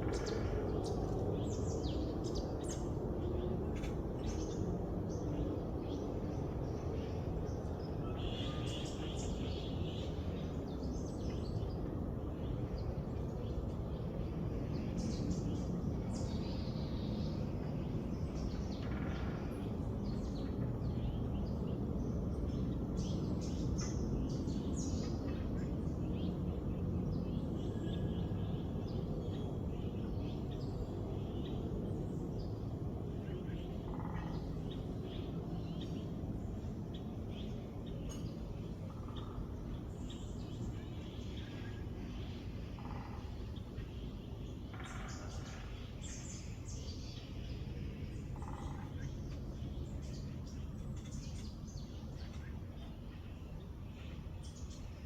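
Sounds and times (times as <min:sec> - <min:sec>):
low background rumble: 0:00.0 - 0:55.0
songbirds chirping: 0:00.0 - 0:55.0.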